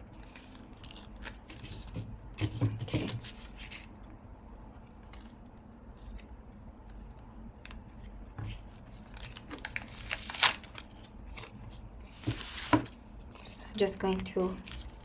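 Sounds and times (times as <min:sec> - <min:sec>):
small crinkles and clicks: 0:00.1 - 0:01.8, 0:04.8 - 0:11.8, 0:13.2 - 0:15.0
paper and tape rustling: 0:08.5 - 0:15.0.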